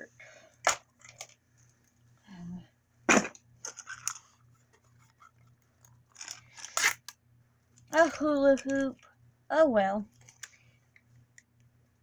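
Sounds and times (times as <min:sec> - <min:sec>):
plastic packaging tearing: 0:06.5 - 0:07.1.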